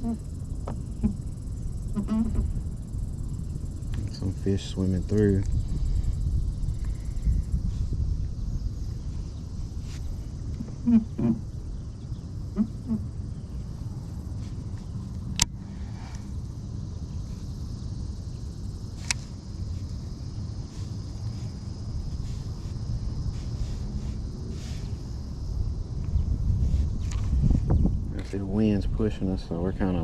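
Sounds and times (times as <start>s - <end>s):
high insect drone: 0.0s - 30.0s
wind rumble on microphone: 0.0s - 30.0s
sharp clicks: 19.0s - 19.2s.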